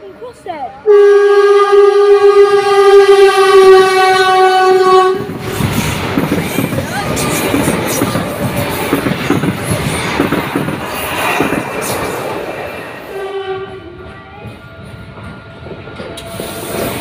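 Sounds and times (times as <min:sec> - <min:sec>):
train wheels clattering on rails: 0:05.1 - 0:17.0.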